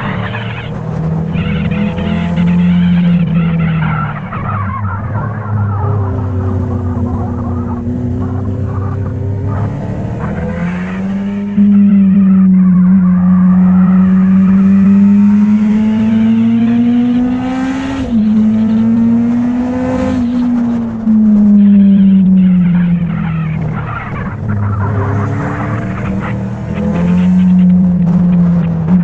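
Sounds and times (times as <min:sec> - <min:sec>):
motorcycle engine running: 0:18.1 - 0:29.0.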